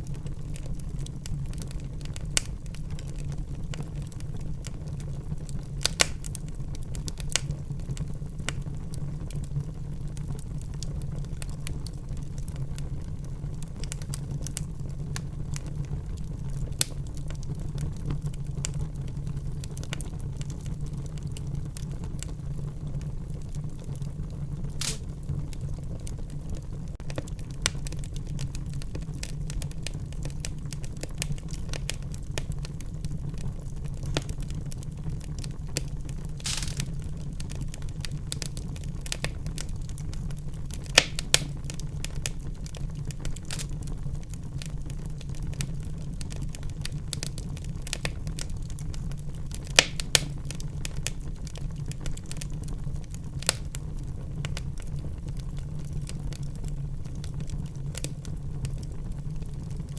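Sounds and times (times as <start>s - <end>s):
fire popping: 0.0s - 59.9s
wood fire crackling: 0.0s - 59.9s
short hiss: 24.8s - 25.0s, 36.4s - 36.9s.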